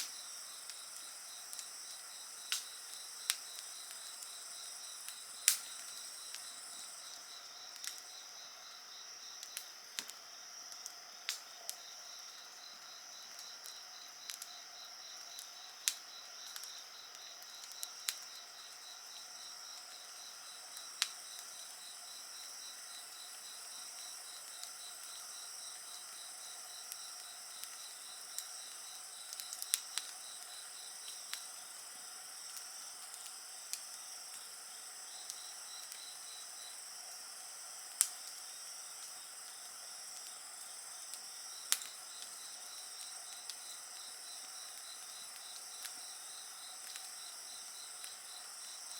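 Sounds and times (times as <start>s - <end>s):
wood fire pops and crackles: 0.0s - 8.2s, 9.4s - 36.8s, 37.8s - 48.9s
insects chirping: 0.0s - 48.9s.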